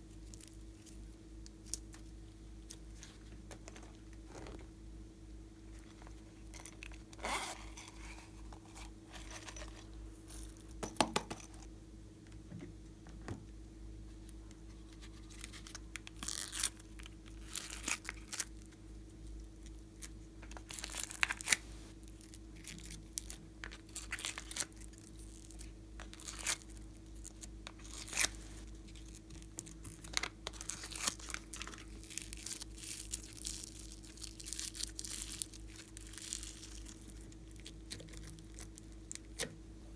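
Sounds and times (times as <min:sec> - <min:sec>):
slime crackling and popping: 0:29.6 - 0:39.4.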